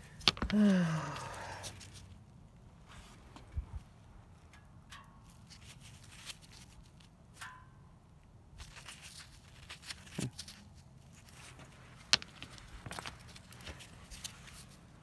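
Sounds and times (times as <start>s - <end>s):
rocks rustling and clicking: 0.0s - 2.3s, 4.4s - 7.6s, 8.6s - 15.0s.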